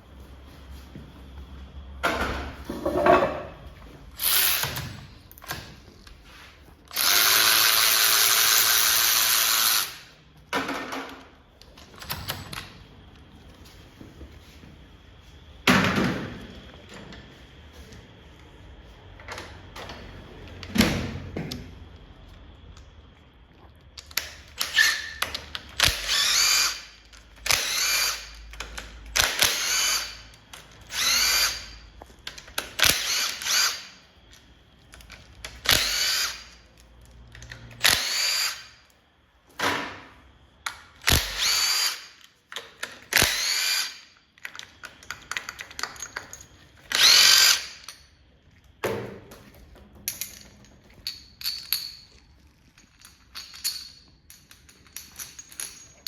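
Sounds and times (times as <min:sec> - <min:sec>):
cordless drill spinning: 0:04.2 - 0:04.8, 0:06.9 - 0:10.1, 0:24.6 - 0:25.2, 0:25.8 - 0:28.4, 0:29.2 - 0:31.8, 0:32.8 - 0:34.0, 0:35.6 - 0:36.6, 0:37.8 - 0:38.8, 0:41.0 - 0:42.2, 0:43.1 - 0:44.0, 0:46.9 - 0:47.8.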